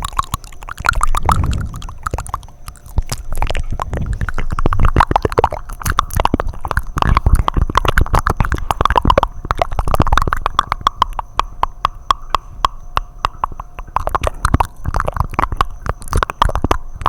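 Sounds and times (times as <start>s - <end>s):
low gurgling: 0.0s - 10.1s
wet sucking: 0.0s - 11.3s
lip smacks: 0.0s - 17.0s
tongue clicks: 0.0s - 17.0s.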